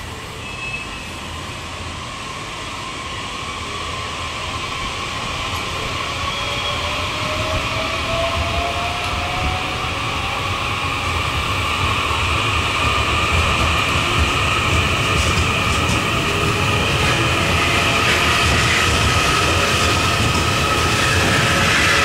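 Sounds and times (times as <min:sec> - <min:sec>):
rumble of train wheels: 0:00.0 - 0:22.0.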